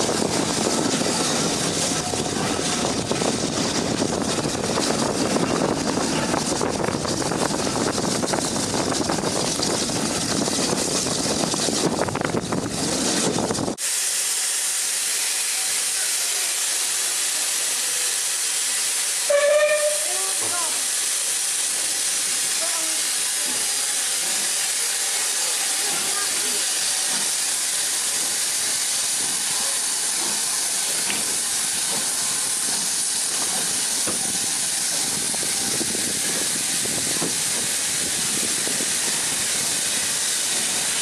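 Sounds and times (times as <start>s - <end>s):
locomotive steam rushing: 0.0s - 41.0s
steady high steam hiss: 0.0s - 41.0s
steam whistle blast: 19.2s - 20.4s.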